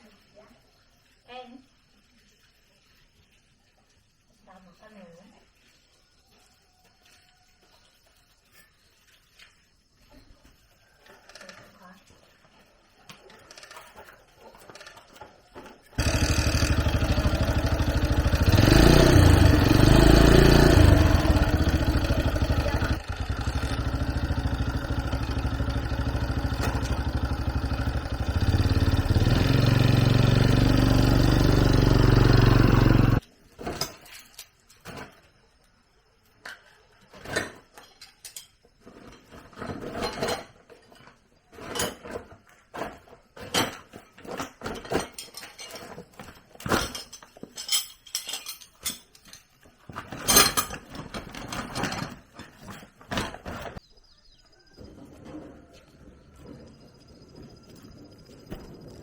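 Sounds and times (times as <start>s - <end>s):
small engine running: 16.0s - 33.2s.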